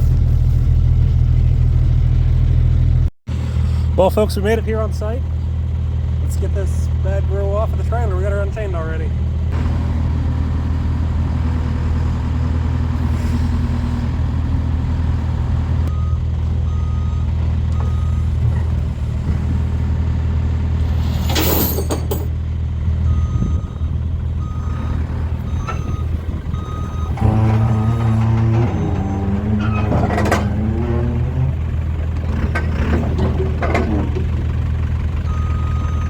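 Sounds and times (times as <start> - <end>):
diesel engine running: 0.0 - 36.0
reverse alarm beeping: 23.0 - 29.1.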